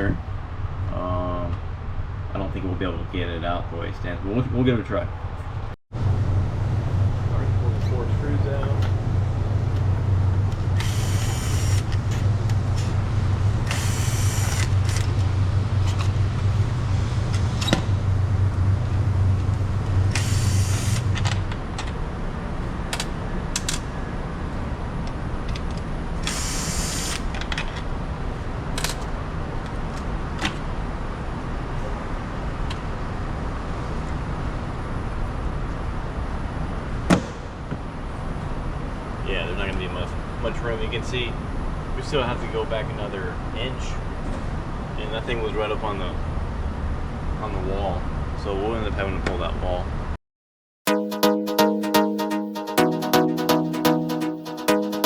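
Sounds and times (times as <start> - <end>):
steady low hum: 0.0 - 26.4
loud knock: 37.1 - 37.8.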